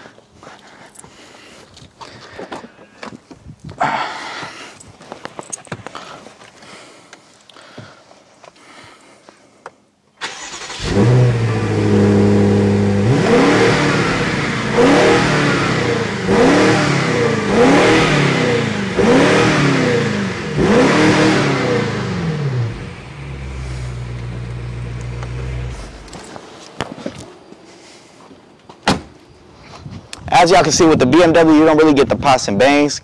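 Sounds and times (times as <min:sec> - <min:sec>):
car engine starting and revving: 0:10.2 - 0:26.3.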